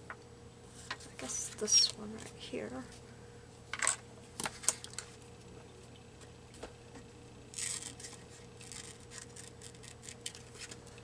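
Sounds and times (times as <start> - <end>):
paper rustling: 7.6 - 11.0
scissors snipping paper: 7.6 - 11.0.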